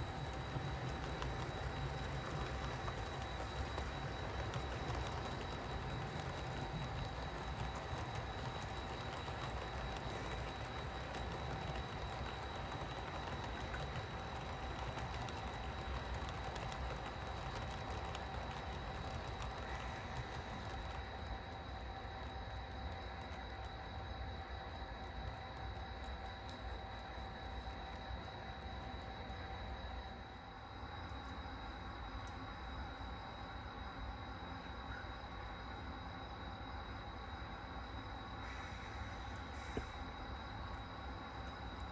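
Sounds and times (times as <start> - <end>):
model train rumble and hum: 0.0 - 41.9
wheels clicking: 0.1 - 21.8.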